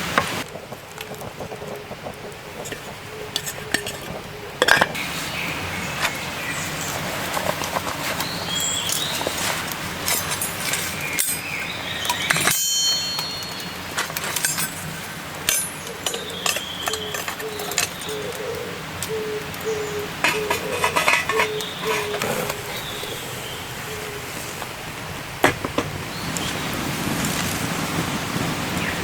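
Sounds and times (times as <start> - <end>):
birds calling: 0.9 - 29.0
dishes and utensils clinking: 2.6 - 5.2, 8.8 - 18.4, 20.2 - 24.2.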